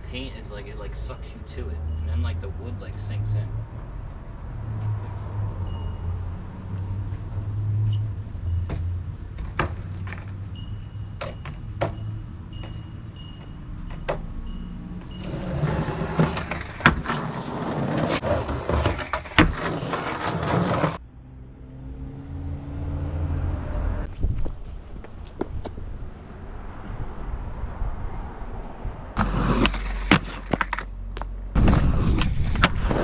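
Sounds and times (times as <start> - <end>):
skateboard wheels rolling on pavement: 6.5 - 14.0, 15.0 - 21.0, 24.1 - 33.0
skateboard clacking on ground: 15.2 - 21.0, 29.2 - 33.0.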